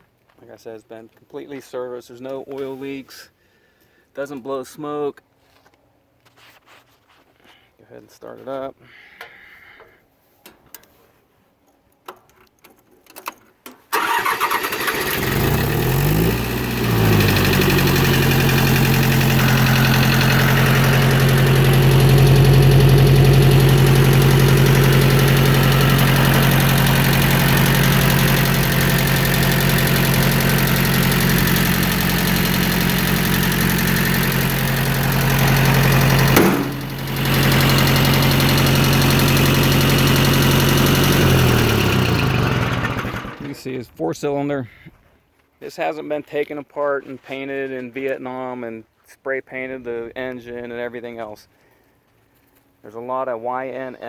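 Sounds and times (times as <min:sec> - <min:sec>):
faint starter clicks: 0:13.1 - 0:43.5
diesel engine starting and idling: 0:13.9 - 0:43.6.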